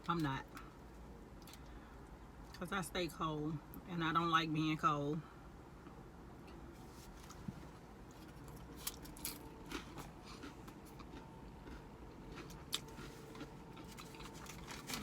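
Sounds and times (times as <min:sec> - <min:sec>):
quiet chewing: 0:08.1 - 0:15.0.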